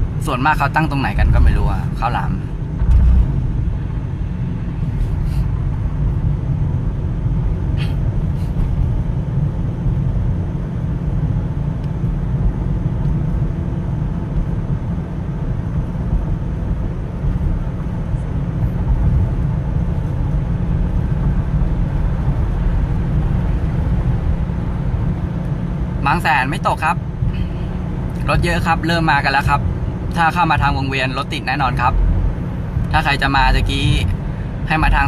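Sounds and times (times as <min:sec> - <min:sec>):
vehicle engine and road noise: 0:00.0 - 0:35.0.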